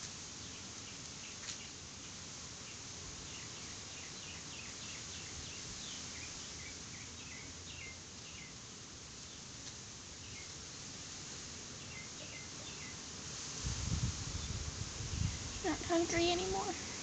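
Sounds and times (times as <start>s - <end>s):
steady hiss: 0.0s - 17.0s
faint high bird chirps: 2.7s - 8.6s, 11.8s - 13.0s.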